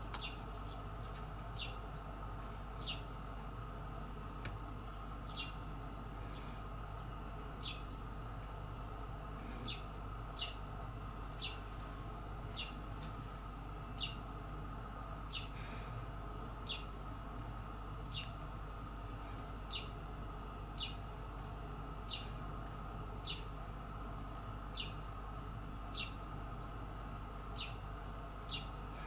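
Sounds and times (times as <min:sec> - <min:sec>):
bird chirping: 0:00.1 - 0:00.9, 0:01.5 - 0:02.1, 0:02.7 - 0:03.6, 0:05.2 - 0:06.5, 0:07.6 - 0:08.0, 0:09.6 - 0:14.4, 0:15.0 - 0:16.9, 0:18.1 - 0:18.4, 0:19.7 - 0:20.0, 0:20.8 - 0:21.1, 0:21.8 - 0:22.4, 0:23.2 - 0:23.5, 0:24.7 - 0:25.1, 0:25.8 - 0:27.8, 0:28.5 - 0:28.8.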